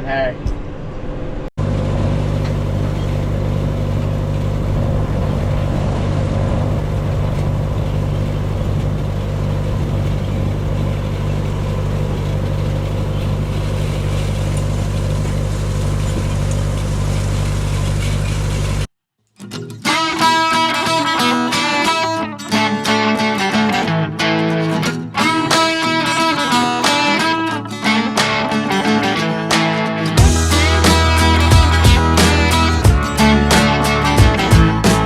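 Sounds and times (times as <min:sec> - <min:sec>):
tractor engine droning: 0:00.4 - 0:18.9, 0:30.2 - 0:35.0.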